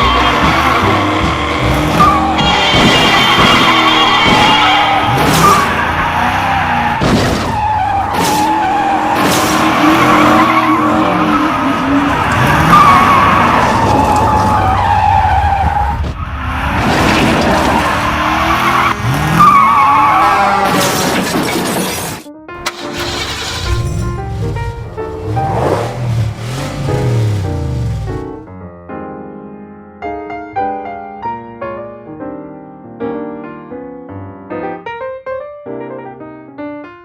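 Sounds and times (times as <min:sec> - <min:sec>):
tires squealing and skidding: 0:00.0 - 0:28.4
car engines revving: 0:00.0 - 0:28.5
crashes: 0:20.5 - 0:28.5.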